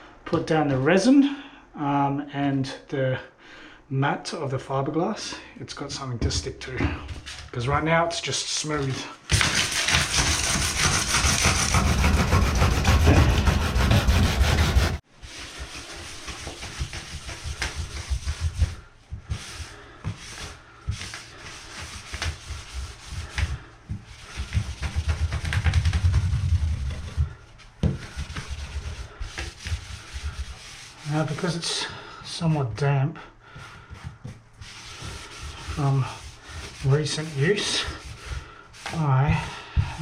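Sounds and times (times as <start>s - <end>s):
sandpaper rubbing on bathtub: 8.6s - 32.5s, 33.5s - 40.0s.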